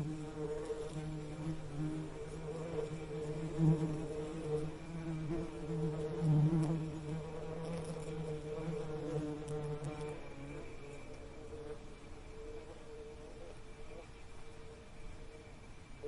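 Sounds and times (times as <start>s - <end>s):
bee buzzing: 0.0s - 14.0s.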